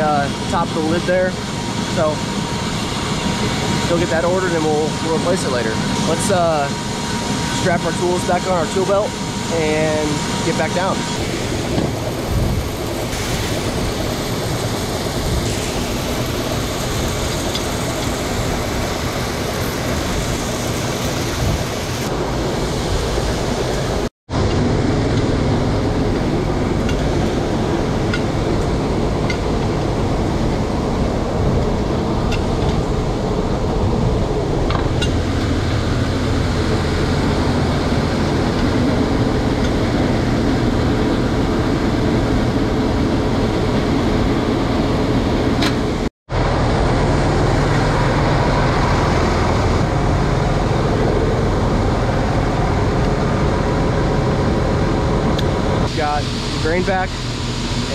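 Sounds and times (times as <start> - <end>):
grain bin machinery running: 0.0 - 57.9
steady drone with low hum: 0.0 - 57.9.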